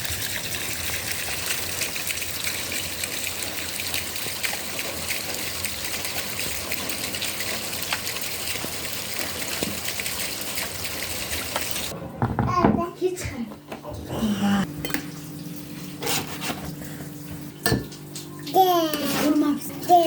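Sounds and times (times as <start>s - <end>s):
running water rushing: 0.0s - 11.9s.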